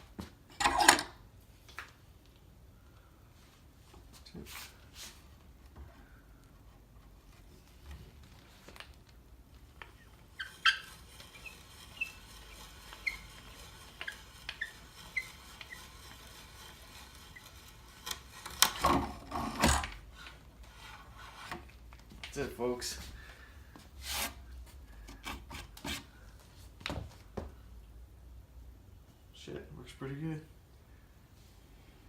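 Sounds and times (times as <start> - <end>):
hand brace squeaking: 9.6 - 18.8
bit scraping and rasping wood: 9.6 - 21.7, 24.0 - 26.2.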